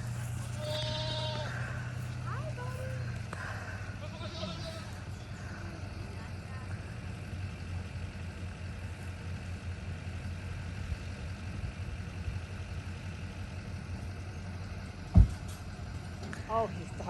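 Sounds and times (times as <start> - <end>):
vehicle engine rumbling: 0.0 - 17.0
loud thump: 15.1 - 15.4.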